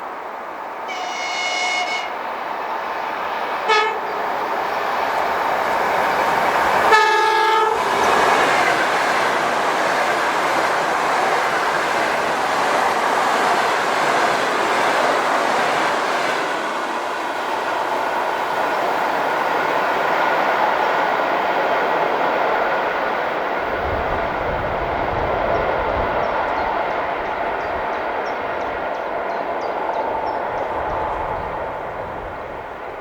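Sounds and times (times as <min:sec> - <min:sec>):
train wheels rumbling on rails: 0:00.0 - 0:33.0
train horn blasts: 0:00.9 - 0:02.2, 0:03.6 - 0:04.3, 0:06.8 - 0:08.3.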